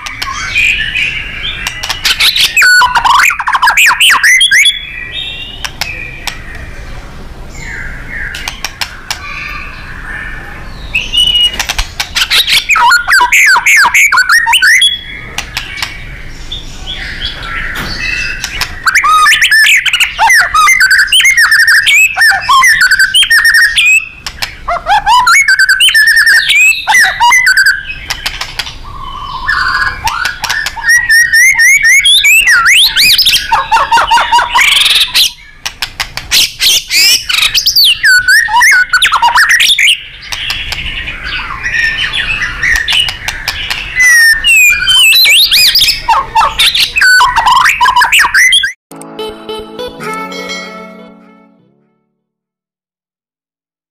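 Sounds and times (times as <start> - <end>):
bird singing varied whistles: 11.0 - 11.6.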